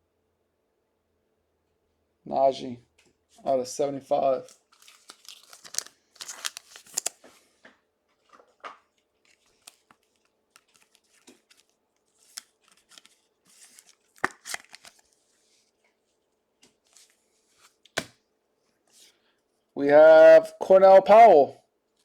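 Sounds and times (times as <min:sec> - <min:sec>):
wrappers crinkling and tearing: 0:04.4 - 0:07.2, 0:09.3 - 0:15.1.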